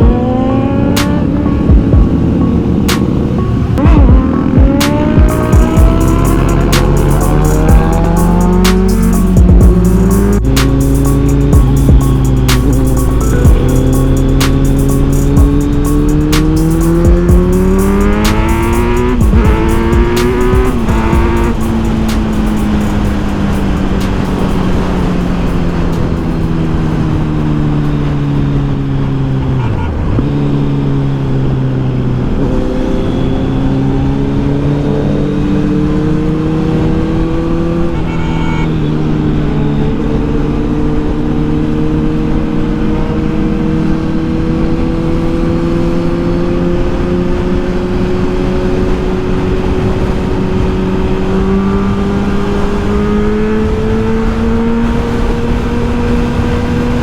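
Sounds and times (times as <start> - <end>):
motorcycle engine running: 0.0 - 31.8.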